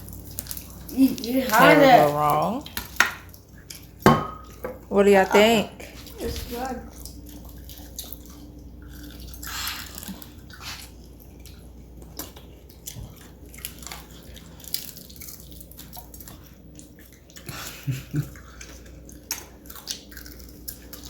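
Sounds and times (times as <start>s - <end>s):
crunching fried chicken: 0.0s - 1.5s, 6.9s - 21.0s
wet chewing: 0.0s - 4.6s, 5.4s - 21.0s.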